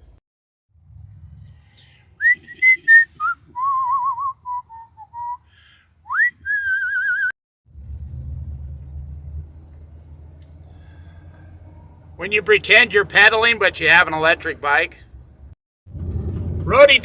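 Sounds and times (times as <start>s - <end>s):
person whistling a tune: 2.2s - 5.5s, 6.1s - 7.3s
low rumble: 7.7s - 17.0s.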